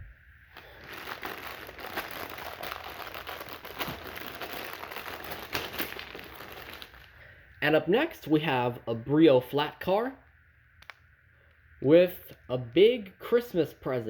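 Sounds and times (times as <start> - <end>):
packaging crinkling: 0.5 - 7.3.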